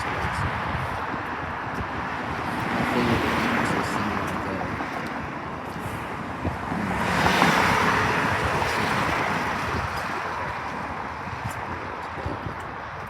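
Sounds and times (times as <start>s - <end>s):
vehicle passing by: 6.4s - 10.6s.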